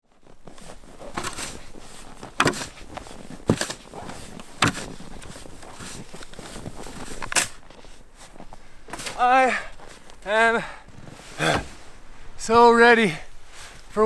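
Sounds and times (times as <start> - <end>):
sharp knocks or crunches: 0.4 - 10.3.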